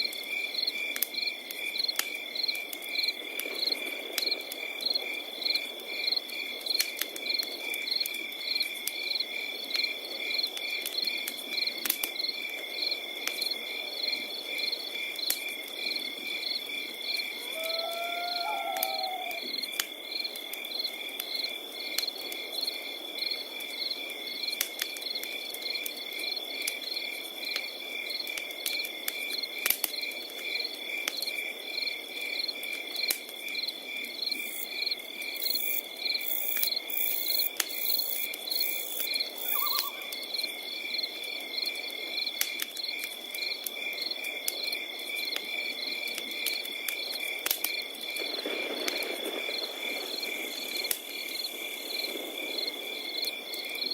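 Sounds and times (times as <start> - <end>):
crackling wood fire: 0.0 - 53.9
crickets chirping rapidly: 0.3 - 53.9
fire popping: 0.8 - 12.3, 14.5 - 31.5, 36.2 - 53.9
cricket high trill: 17.4 - 19.4, 39.4 - 40.2.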